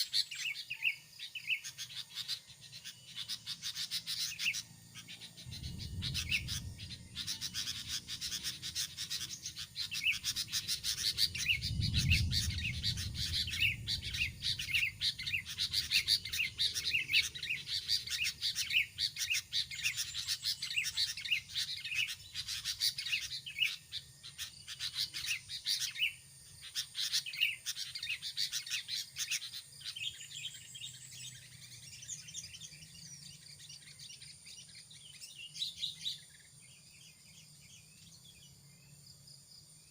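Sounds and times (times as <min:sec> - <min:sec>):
small birds chirping: 0:00.0 - 0:39.9
low rumble: 0:05.3 - 0:08.7, 0:10.6 - 0:17.5.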